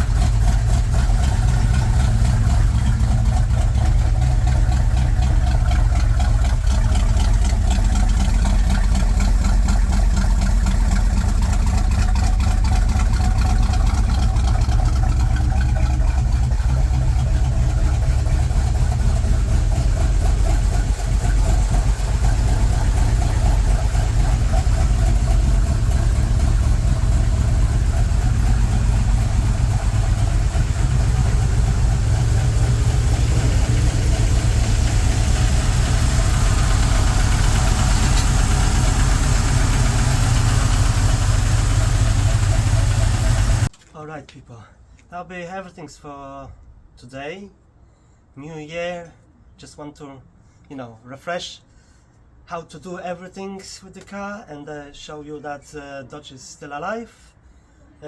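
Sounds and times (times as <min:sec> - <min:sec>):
car engine idling: 0:00.0 - 0:43.7.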